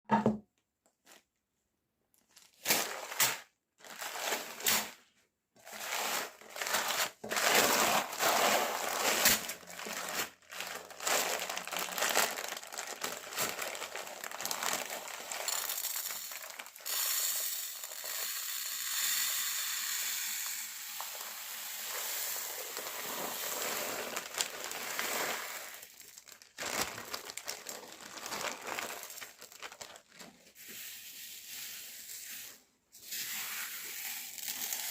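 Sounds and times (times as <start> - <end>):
hard candies crunching in grinder: 5.6 - 30.4, 33.9 - 34.9.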